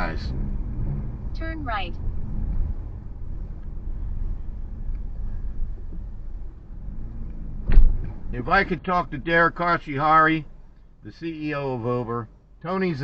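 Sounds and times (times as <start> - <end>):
road and engine rumble in car: 0.0 - 13.0
sharp thump: 7.6 - 8.3.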